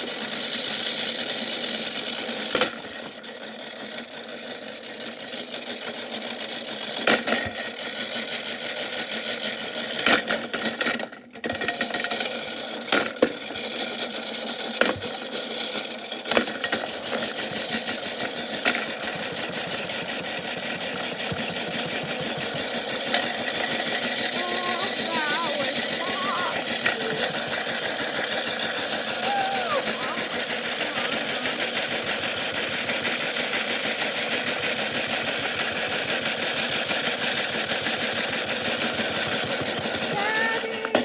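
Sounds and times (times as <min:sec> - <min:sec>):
washing machine hum: 0:21.1 - 0:32.5.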